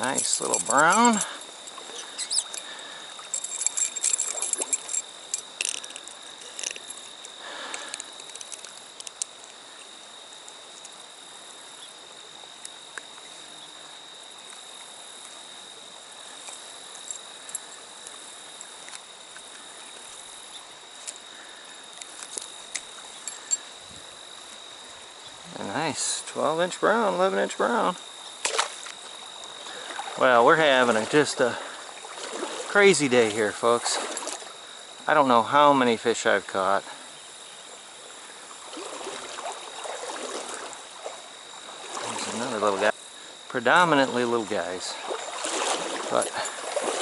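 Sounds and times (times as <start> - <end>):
crickets droning: 0.0 - 47.0
small splashes: 28.4 - 34.6, 38.5 - 42.6, 44.9 - 47.0
stream rushing: 28.4 - 35.5, 38.6 - 42.9, 43.7 - 47.0.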